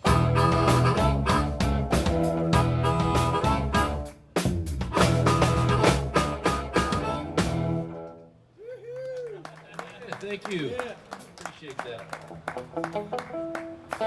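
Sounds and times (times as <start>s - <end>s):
drum hits: 0.0s - 7.9s
live band playing: 0.0s - 8.3s, 12.2s - 14.0s.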